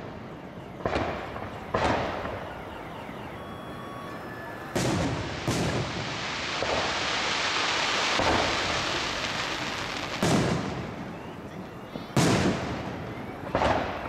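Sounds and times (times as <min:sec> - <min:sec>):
firework bangs: 0:00.0 - 0:14.0
hiss of firework bursts: 0:04.2 - 0:10.9.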